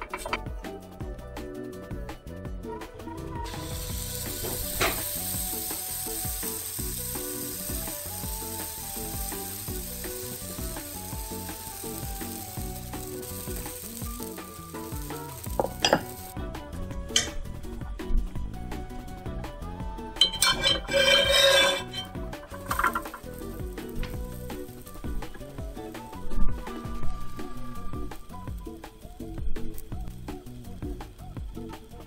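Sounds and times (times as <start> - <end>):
batter sizzling in a pan: 3.5 - 16.4, 20.2 - 32.0.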